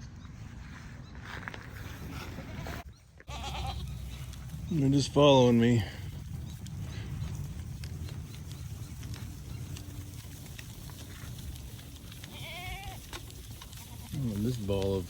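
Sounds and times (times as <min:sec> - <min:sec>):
goat bleating: 0:02.4 - 0:04.2, 0:12.2 - 0:14.2
steady low rumble: 0:03.7 - 0:12.4.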